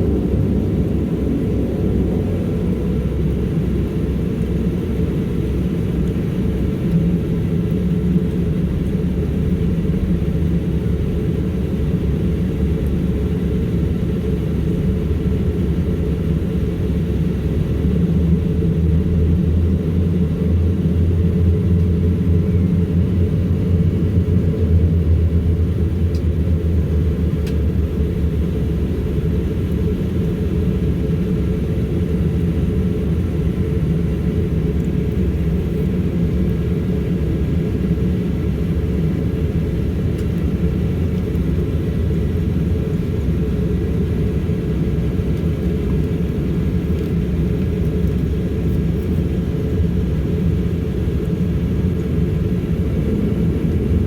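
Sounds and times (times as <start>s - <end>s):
propeller drone: 0.0s - 54.0s.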